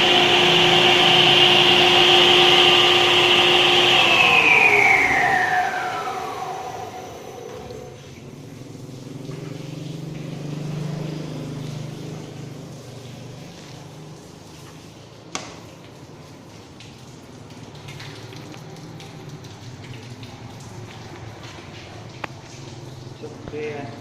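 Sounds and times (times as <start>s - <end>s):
cutting machine whine winding down: 0.0s - 8.2s.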